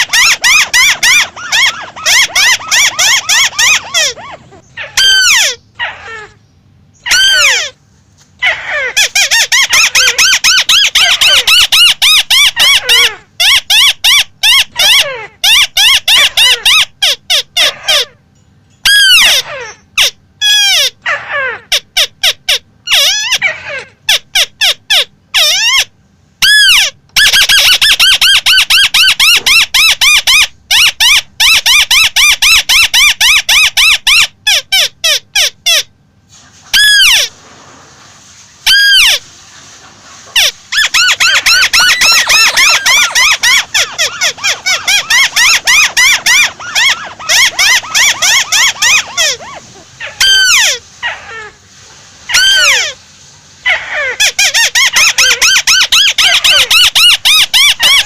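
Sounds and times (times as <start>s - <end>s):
crake calling: 0.0s - 7.8s, 40.4s - 51.5s.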